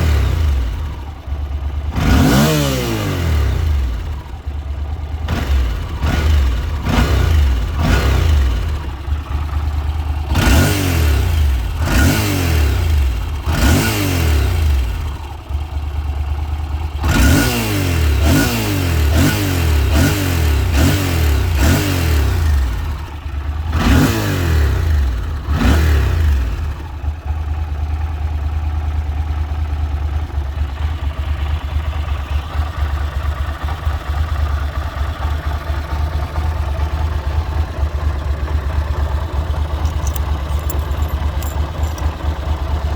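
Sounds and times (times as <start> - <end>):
motorcycle engine revving and idling: 0.0 - 42.9.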